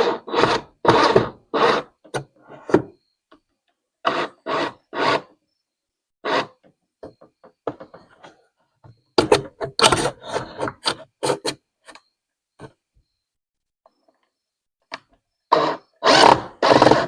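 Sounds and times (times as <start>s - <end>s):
hard objects knocking and scraping: 6.6s - 11.6s.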